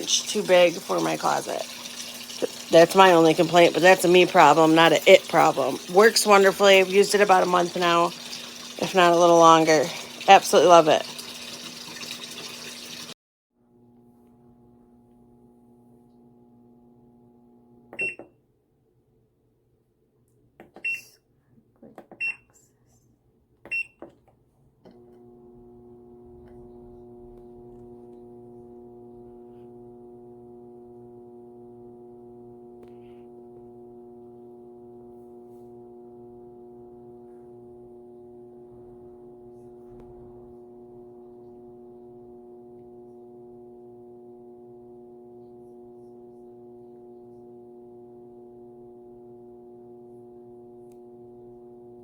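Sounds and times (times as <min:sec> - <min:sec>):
washing machine beep: 0:00.0 - 0:12.1, 0:18.0 - 0:18.3, 0:20.8 - 0:21.1, 0:22.2 - 0:22.5, 0:23.7 - 0:24.0
washing machine motor humming: 0:00.0 - 0:13.2, 0:25.0 - 0:52.0.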